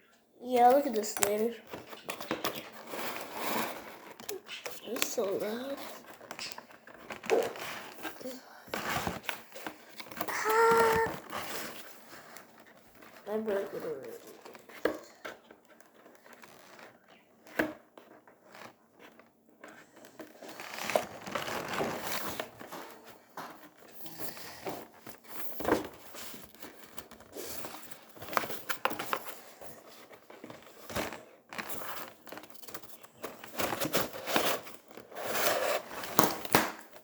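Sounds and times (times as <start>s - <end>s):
packaging crinkling: 1.7s - 17.2s, 18.0s - 23.9s.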